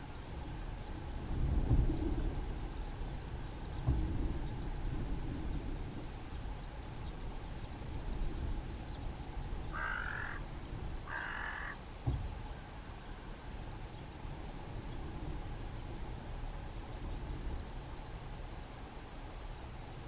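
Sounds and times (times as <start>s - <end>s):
crow cawing: 9.7s - 10.4s, 11.0s - 11.8s.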